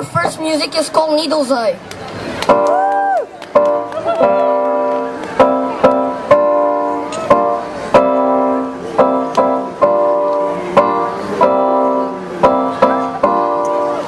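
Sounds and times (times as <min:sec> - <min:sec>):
band playing live music: 0:03.6 - 0:14.0.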